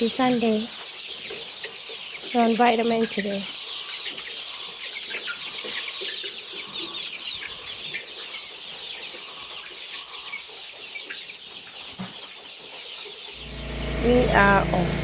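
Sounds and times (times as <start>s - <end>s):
chickens chirping and clucking: 0.0s - 14.6s.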